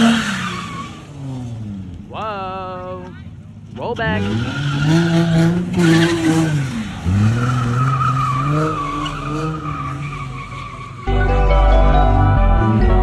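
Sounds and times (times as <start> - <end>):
car engine revving: 0.0 - 13.0
tires squealing: 0.0 - 13.0
loud music with heavy bass: 11.1 - 13.0.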